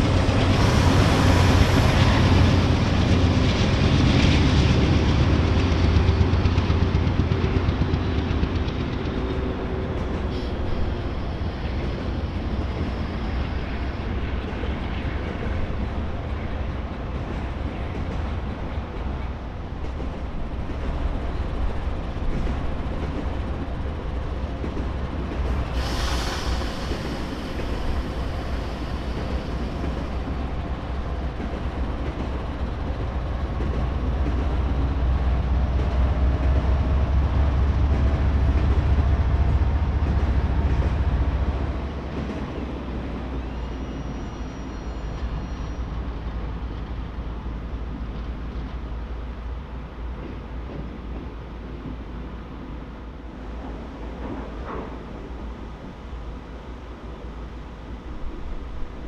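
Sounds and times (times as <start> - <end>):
train wheels rumbling on rails: 0.0 - 59.0
brief hiss: 25.5 - 30.4.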